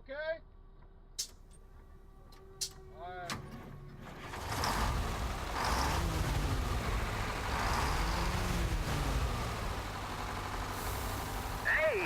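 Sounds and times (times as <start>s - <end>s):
road noise: 1.2s - 12.0s
truck engine running: 3.9s - 12.0s.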